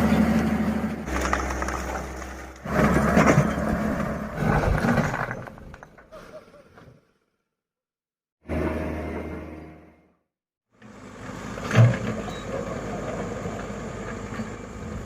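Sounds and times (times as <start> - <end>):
excavator engine running: 0.0 - 5.8, 10.8 - 15.0.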